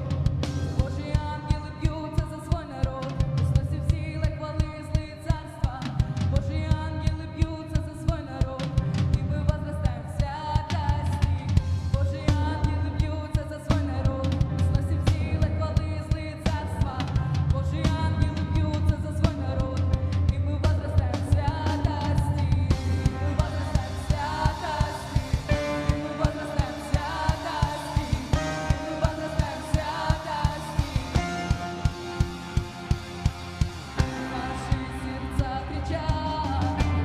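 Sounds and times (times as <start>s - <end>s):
bass: 0.0s - 37.0s
drum kit beat: 0.0s - 37.0s
sustained chords: 22.8s - 37.0s.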